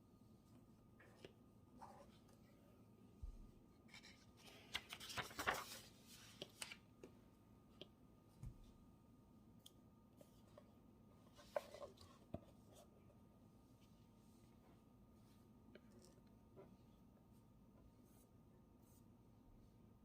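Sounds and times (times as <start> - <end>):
paper rustling: 3.9 - 6.8.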